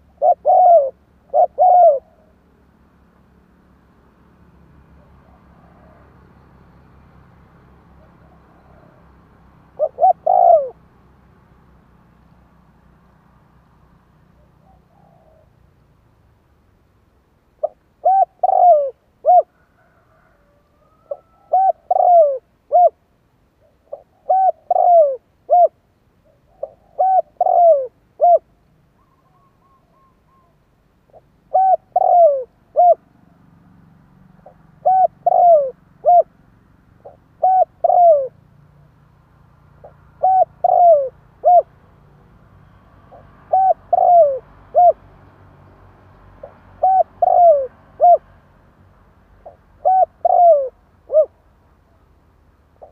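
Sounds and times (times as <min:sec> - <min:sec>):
dove cooing: 0:00.0 - 0:02.6, 0:05.0 - 0:06.3, 0:07.9 - 0:10.9, 0:14.4 - 0:15.6, 0:17.6 - 0:23.0, 0:23.6 - 0:33.0, 0:34.4 - 0:36.3, 0:37.0 - 0:38.4, 0:39.8 - 0:41.8, 0:43.0 - 0:45.0, 0:46.4 - 0:48.3, 0:49.4 - 0:51.4.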